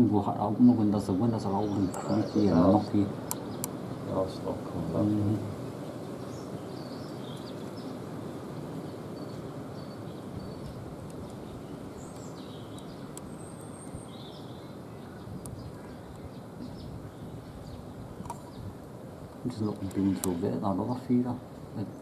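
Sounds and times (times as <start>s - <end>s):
songbirds chirping: 0.0s - 22.0s
bird trill: 8.8s - 18.7s.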